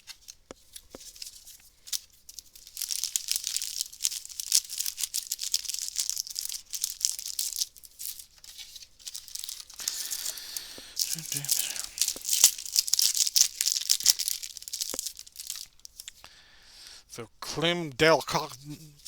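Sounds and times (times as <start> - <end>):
wrapper tearing and crinkling: 0.0 - 16.2.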